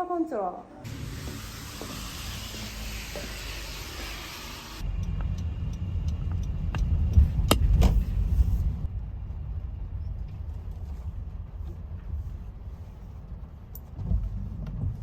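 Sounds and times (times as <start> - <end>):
car engine and road rumble: 4.8 - 15.0.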